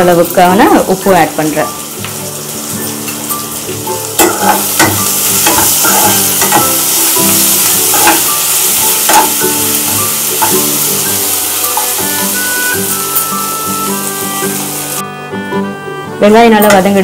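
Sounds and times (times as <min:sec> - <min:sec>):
onions sizzling in hot oil: 0:00.0 - 0:15.0
metal spatula scraping pan: 0:04.2 - 0:07.1.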